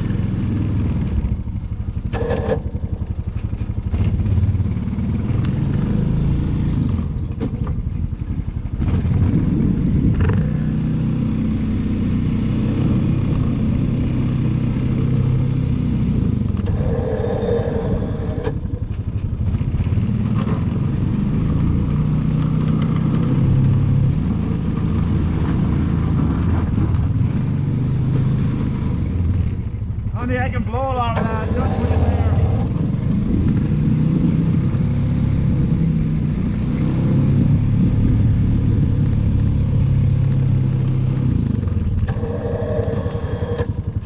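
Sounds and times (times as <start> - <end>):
snowblower engine running: 2.0 - 6.8, 14.7 - 20.2, 30.1 - 33.6, 41.2 - 44.0.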